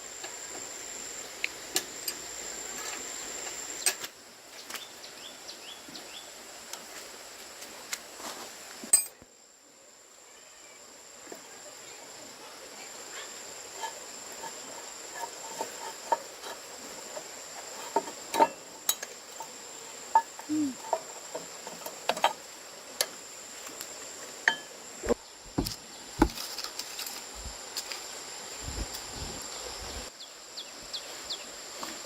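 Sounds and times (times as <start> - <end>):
high insect drone: 0.0 - 32.0
tools clinking on metal: 8.9 - 9.2.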